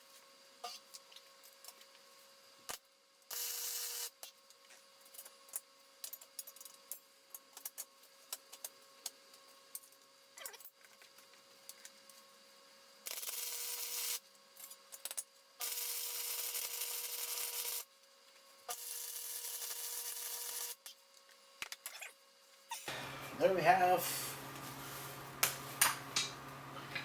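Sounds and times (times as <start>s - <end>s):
welder arc crackling: 22.9s - 27.0s.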